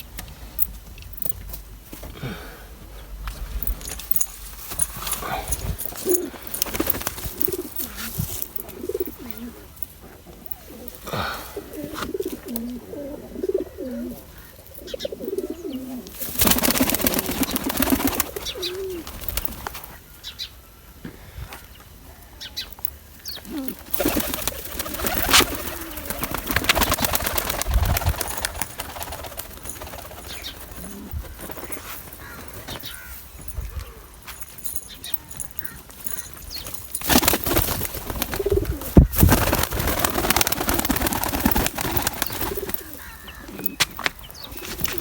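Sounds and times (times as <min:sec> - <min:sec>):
pigeons cooing: 0:05.2 - 0:19.5, 0:23.3 - 0:34.1, 0:37.1 - 0:45.0
rapid flutter of wingbeats: 0:05.6 - 0:08.2, 0:16.2 - 0:19.8, 0:23.7 - 0:32.4, 0:37.1 - 0:43.2.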